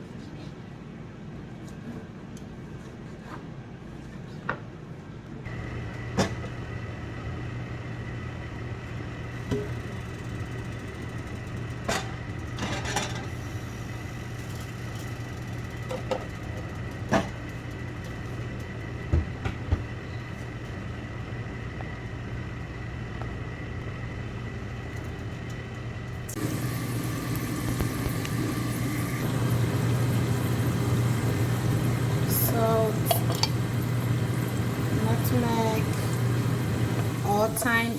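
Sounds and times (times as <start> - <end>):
low mechanical hum: 0.0 - 37.9
kitchen utensils clicking: 33.0 - 33.6.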